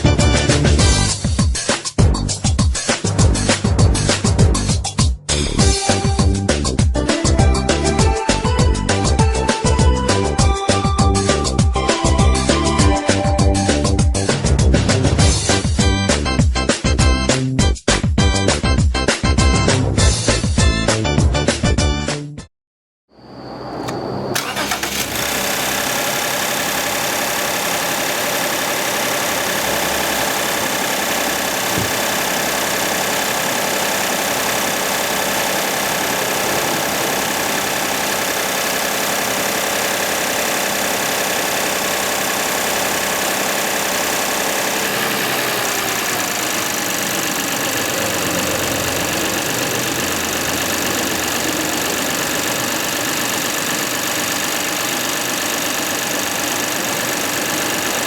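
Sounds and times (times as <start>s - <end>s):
car engine idling: 23.3s - 58.0s.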